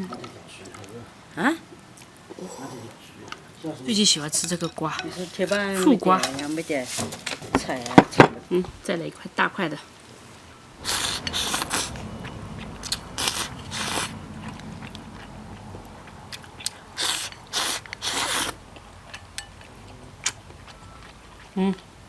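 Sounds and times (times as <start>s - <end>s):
person chewing noisily: 10.8s - 22.0s.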